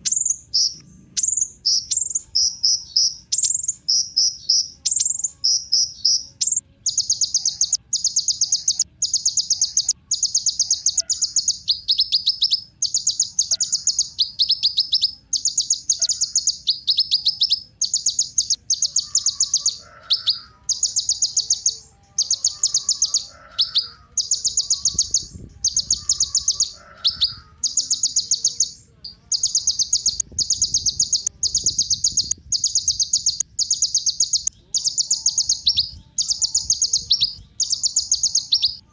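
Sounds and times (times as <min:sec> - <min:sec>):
bird singing rapid trilled phrases: 0:00.0 - 0:38.9.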